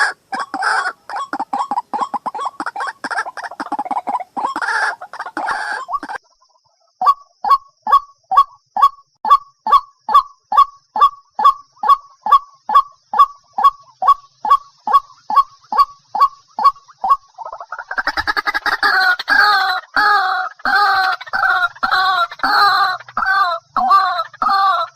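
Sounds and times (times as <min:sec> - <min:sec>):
waterhen harsh calls: 0:00.0 - 0:06.2, 0:11.4 - 0:24.9.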